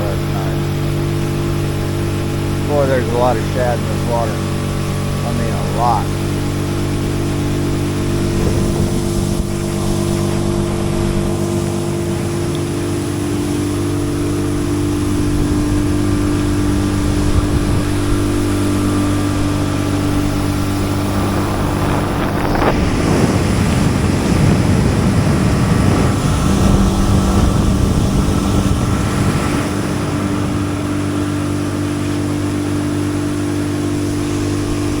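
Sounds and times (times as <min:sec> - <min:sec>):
outboard motor running: 0:00.0 - 0:35.0
rushing water and wind: 0:00.0 - 0:35.0.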